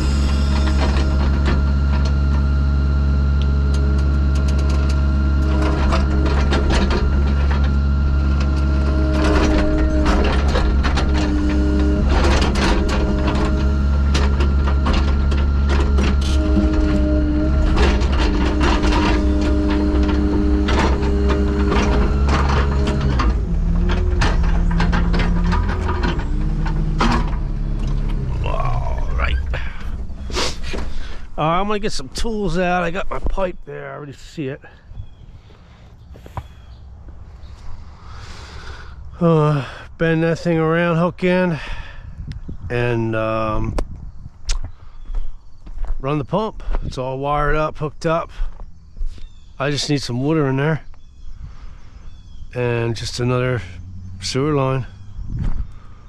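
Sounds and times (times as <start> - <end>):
engine humming: 0.0 - 56.0
hydraulic whine: 0.0 - 56.0
clicks and rattles: 3.4 - 28.3
metallic clanks and knocks: 3.7 - 28.4.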